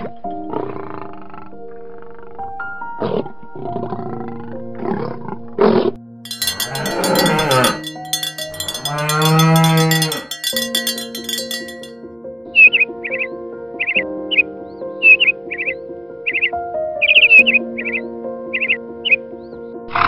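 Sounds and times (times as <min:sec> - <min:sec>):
background piano music: 0:00.0 - 0:07.7, 0:12.2 - 0:20.0.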